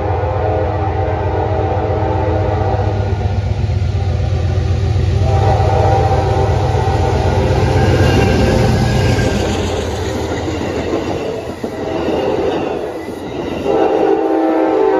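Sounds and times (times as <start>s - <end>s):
train air horn blasts: 0.0s - 3.4s, 4.0s - 9.6s, 11.7s - 12.9s, 13.6s - 14.9s
low rumble of train: 0.0s - 14.9s.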